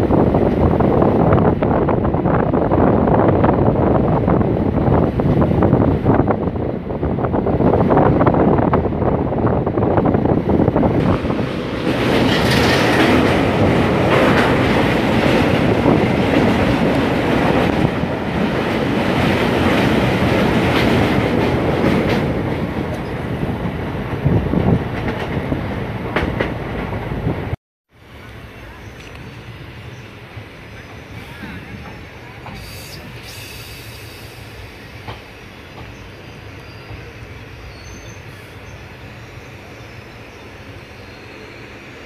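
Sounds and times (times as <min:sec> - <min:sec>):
train crossing steel bridge: 0:00.0 - 0:42.0
train wheels clattering over rail joints: 0:11.0 - 0:17.9.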